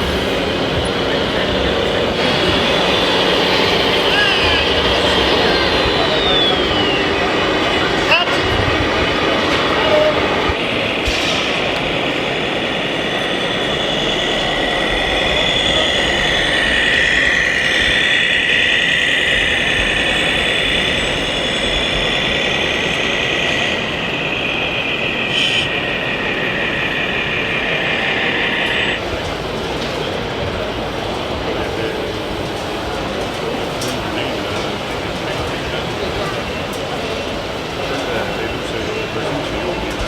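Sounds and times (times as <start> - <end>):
high-pitched electric drive whine: 0.0 - 29.4.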